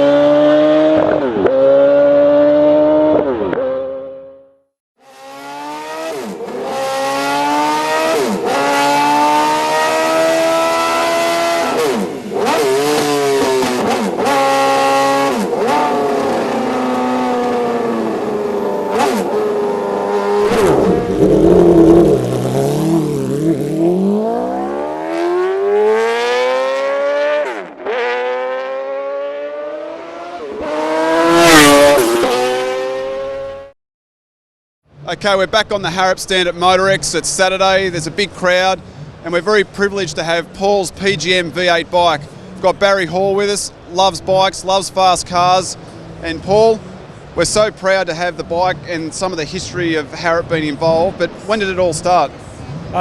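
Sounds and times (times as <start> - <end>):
motorcycle accelerating through gears: 0.0 - 4.4, 5.1 - 33.7.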